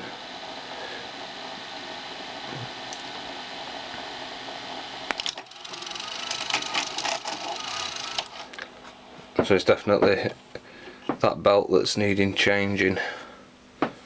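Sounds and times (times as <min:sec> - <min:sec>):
tape deck motor whir: 0:02.8 - 0:08.7
mechanism clicks and rattles: 0:05.2 - 0:08.6.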